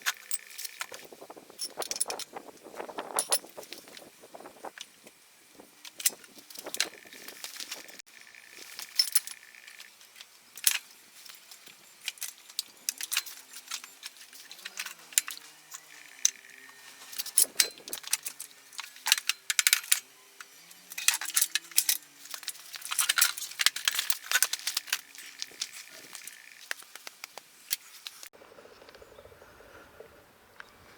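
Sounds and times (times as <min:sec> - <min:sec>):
metal tools clinking: 0:00.0 - 0:02.4, 0:03.0 - 0:03.7, 0:10.6 - 0:26.6.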